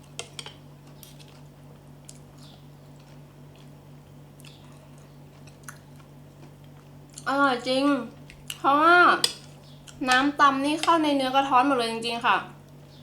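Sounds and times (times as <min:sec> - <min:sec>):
person chewing food: 0:00.0 - 0:07.3, 0:08.2 - 0:08.6, 0:09.4 - 0:10.1
steady low hum: 0:00.0 - 0:13.0.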